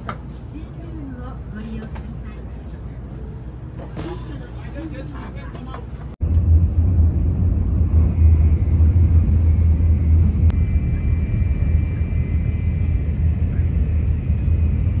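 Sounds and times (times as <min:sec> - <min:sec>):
train low rumble: 0:00.0 - 0:15.0
faint high whine: 0:07.6 - 0:15.0.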